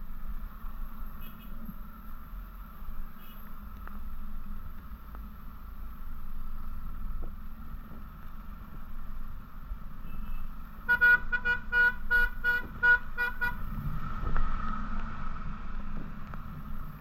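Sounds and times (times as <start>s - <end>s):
road noise and wind rumble: 0.0s - 17.0s
vehicle horn tooting: 1.2s - 1.6s, 10.0s - 13.6s.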